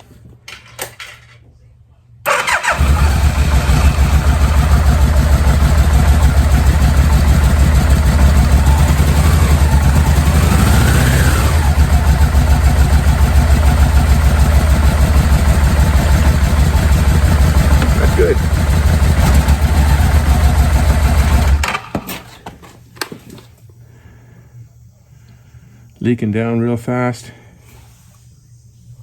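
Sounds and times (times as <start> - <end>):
motorcycle engine starting and running: 2.3 - 21.9.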